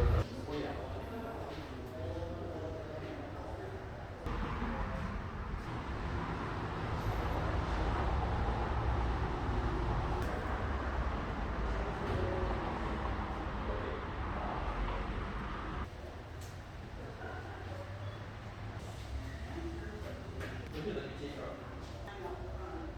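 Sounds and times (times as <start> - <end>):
truck engine rumbling: 0.0 - 0.2
road noise: 0.0 - 0.3, 4.3 - 16.9.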